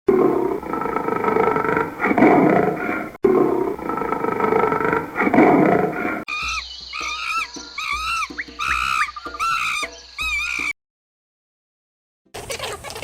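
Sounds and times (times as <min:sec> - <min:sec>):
lion roaring: 0:00.1 - 0:06.3.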